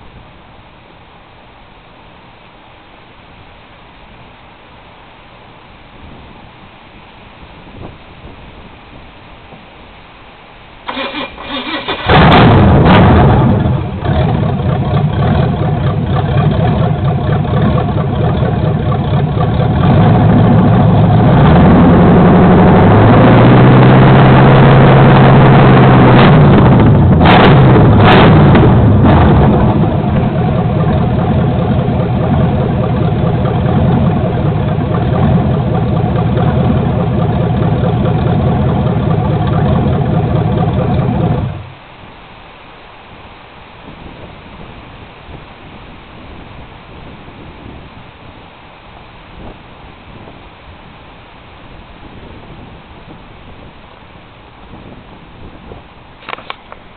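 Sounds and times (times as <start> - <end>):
sharp exhaust cracks: 10.8 - 42.0
starter motor cranking: 10.9 - 12.6
loud car engine revving and idling: 11.4 - 41.8.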